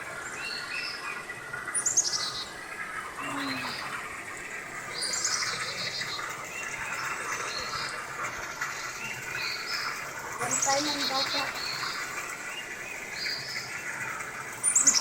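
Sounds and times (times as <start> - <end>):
wild birds chirping: 0.0 - 15.0.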